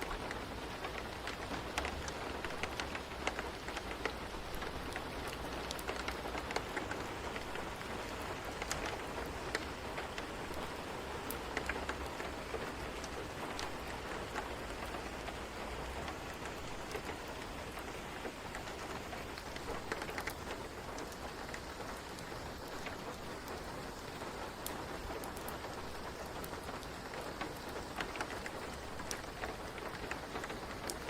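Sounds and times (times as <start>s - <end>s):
fire crackling: 0.0s - 31.0s
rain hissing: 0.0s - 31.0s.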